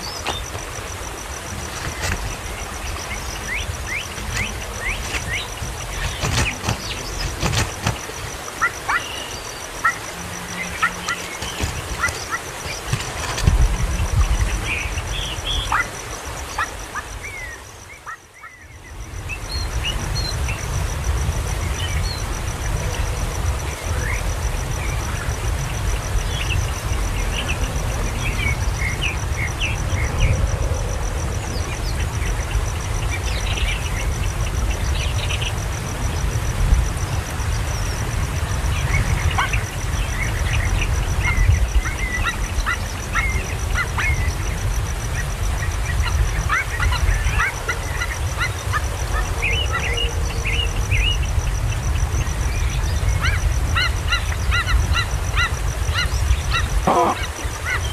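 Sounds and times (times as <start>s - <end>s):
birds chirping: 0.0s - 20.6s, 45.2s - 57.9s.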